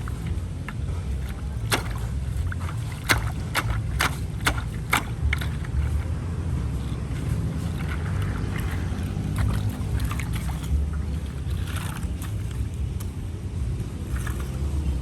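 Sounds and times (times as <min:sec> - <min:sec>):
sharp clicks and knocks: 0:00.0 - 0:06.1.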